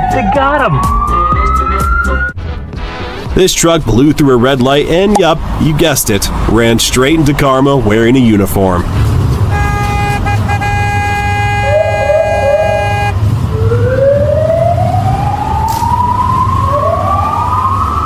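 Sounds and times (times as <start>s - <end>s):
emergency siren wailing: 0.0s - 2.4s, 9.9s - 18.0s
low traffic rumble: 3.3s - 18.0s
vehicle horn blast: 9.5s - 13.2s.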